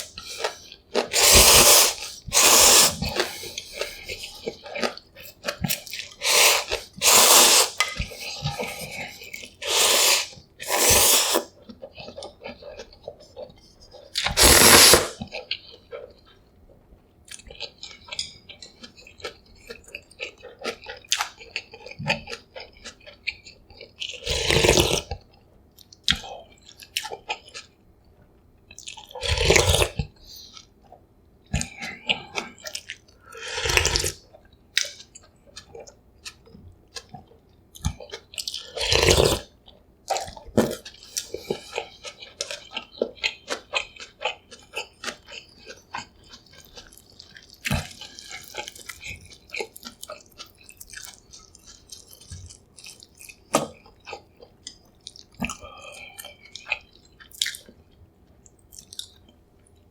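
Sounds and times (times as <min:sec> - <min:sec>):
slurping noodles: 0:00.0 - 0:04.5, 0:05.8 - 0:11.6, 0:14.2 - 0:15.2, 0:24.2 - 0:25.1, 0:38.7 - 0:39.5
wet chewing: 0:40.1 - 0:59.4.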